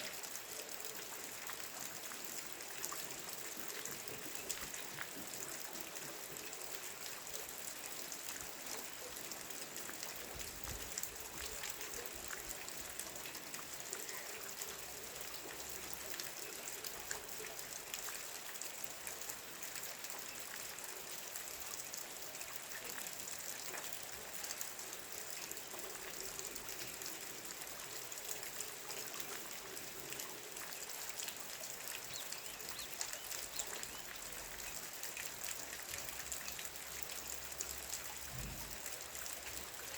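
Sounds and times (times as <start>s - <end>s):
rain drops ticking: 0.0s - 39.9s
trickle of running water: 0.0s - 39.9s.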